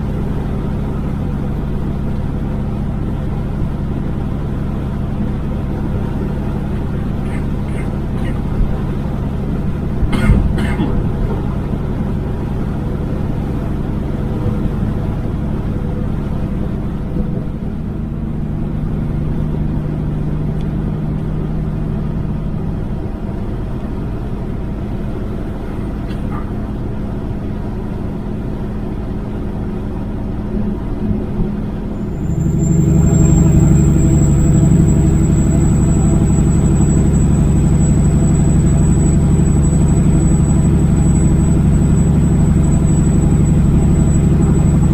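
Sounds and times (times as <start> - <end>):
road noise: 0.0 - 44.9
truck diesel engine running: 0.0 - 44.9
thin high whine: 31.8 - 44.9.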